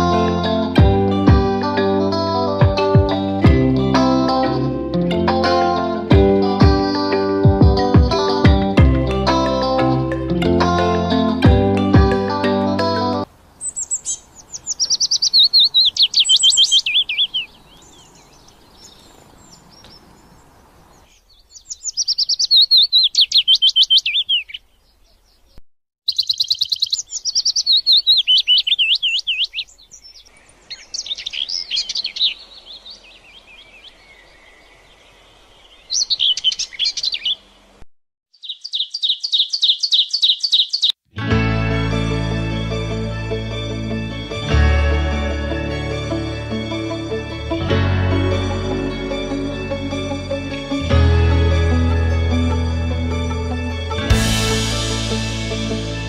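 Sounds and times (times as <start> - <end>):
songbirds chirping trilled phrases: 9.1 - 41.0
faint outdoor hiss: 12.9 - 23.4, 26.3 - 37.8.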